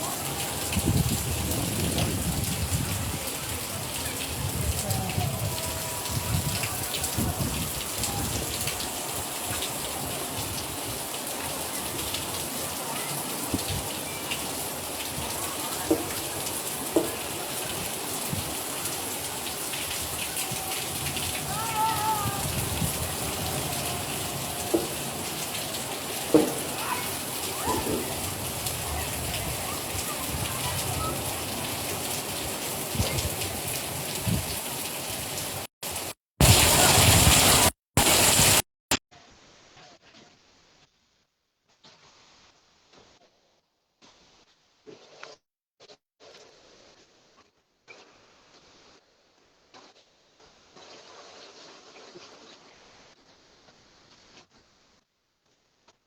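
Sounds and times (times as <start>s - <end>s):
rain pattering: 0.0s - 38.6s.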